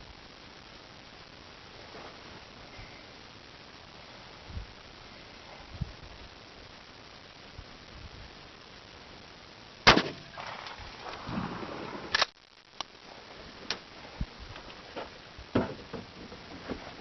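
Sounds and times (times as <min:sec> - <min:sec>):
shotgun firing: 0:09.8 - 0:11.7.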